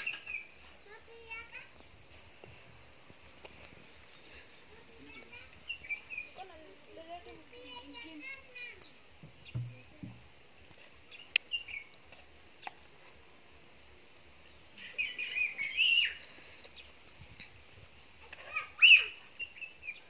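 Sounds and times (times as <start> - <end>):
high insect drone: 0.0 - 20.0
bird chirping quickly: 14.8 - 16.2.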